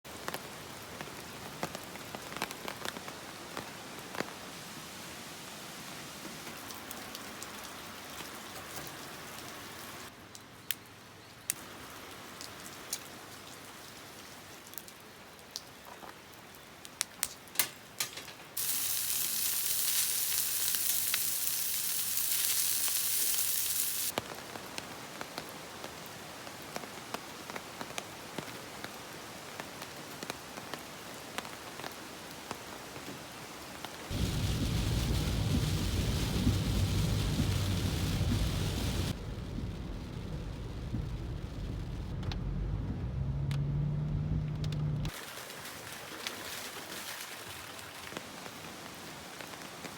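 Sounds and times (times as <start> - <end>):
raindrops ticking on surfaces: 0.1 - 4.6, 6.1 - 42.7
light rain falling: 0.1 - 49.9
low rumble: 34.1 - 45.1.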